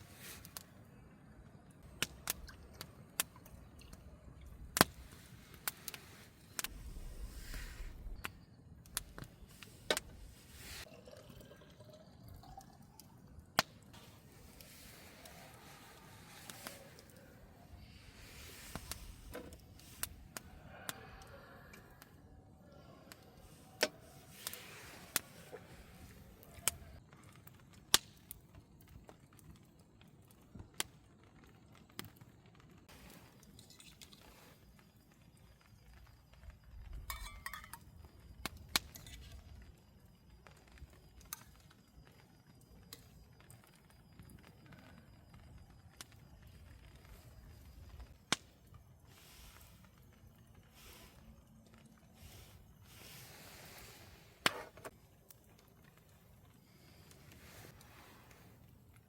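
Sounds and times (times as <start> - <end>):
sharp crackling pops: 0.0 - 10.9, 12.9 - 22.1, 22.8 - 59.0
liquid trickling: 10.2 - 13.0.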